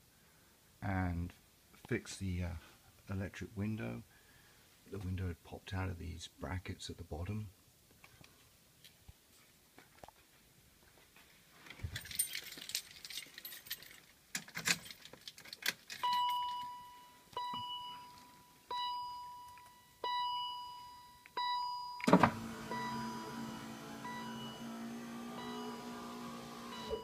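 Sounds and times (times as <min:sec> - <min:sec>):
keys jangling: 0:11.7 - 0:16.6
car warning chime: 0:16.0 - 0:27.0.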